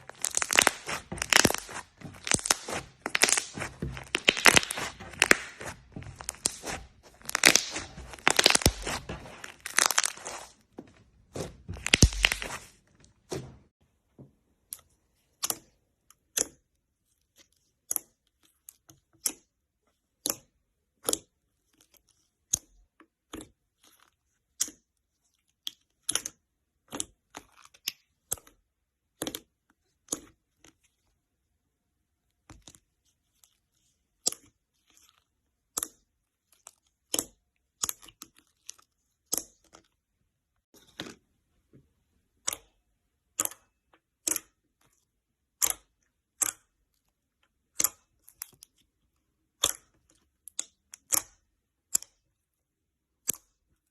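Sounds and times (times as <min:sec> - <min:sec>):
slime crackling and popping: 0:00.0 - 0:10.6, 0:11.7 - 0:12.7
sharp slime pops: 0:00.1 - 0:10.5, 0:11.7 - 0:12.7.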